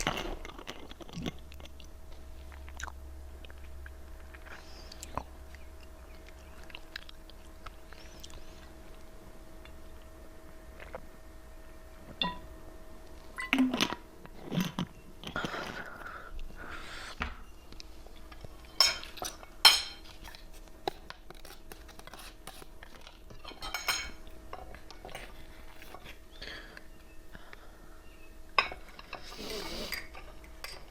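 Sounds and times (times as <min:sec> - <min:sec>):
chewing: 0:00.0 - 0:10.1
cutlery clinking on a dish: 0:18.8 - 0:20.4, 0:23.4 - 0:25.3.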